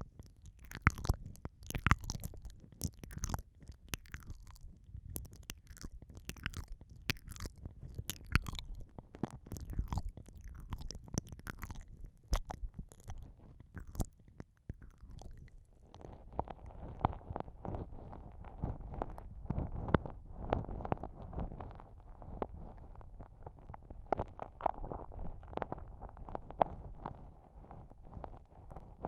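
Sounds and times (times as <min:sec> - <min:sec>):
wet lip smacks and licking: 0:00.0 - 0:16.1
soft low rumbles: 0:00.0 - 0:29.0.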